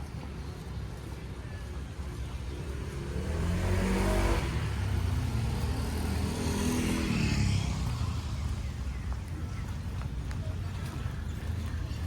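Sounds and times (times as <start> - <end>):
vehicle engine passing by: 2.8 - 8.5.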